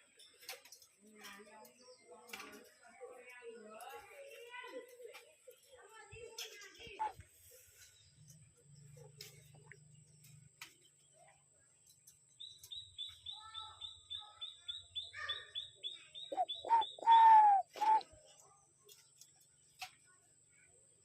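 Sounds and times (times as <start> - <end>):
lower falling bird calls: 12.4 - 18.1
short high bird chirps: 15.3 - 18.0.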